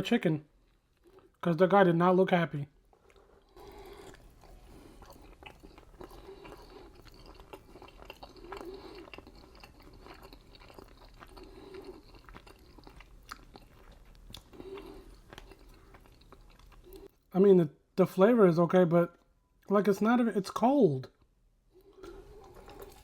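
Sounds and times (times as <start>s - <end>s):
chewing and biting food: 0.6s - 1.4s, 2.9s - 17.1s, 21.8s - 23.0s.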